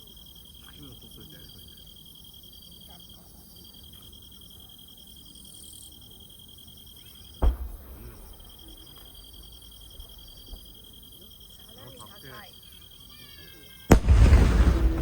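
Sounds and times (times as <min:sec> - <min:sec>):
insects pulsing trill: 0:00.0 - 0:15.0
firework bang with rumble: 0:07.4 - 0:09.3, 0:13.9 - 0:15.0.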